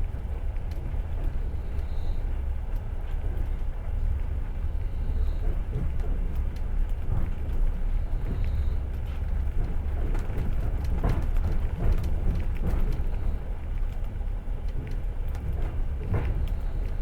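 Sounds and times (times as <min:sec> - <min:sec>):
train wheels rumbling on rails: 0:00.0 - 0:17.0
wheels clicking and knocking: 0:09.4 - 0:14.1.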